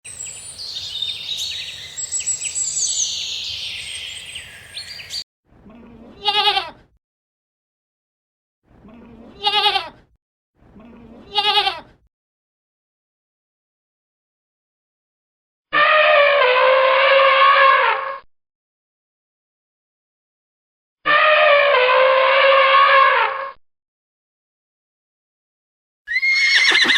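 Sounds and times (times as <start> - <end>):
high twittering chorus: 0.1 - 5.2
goat bleating: 6.2 - 6.8, 9.4 - 10.0, 11.2 - 11.9.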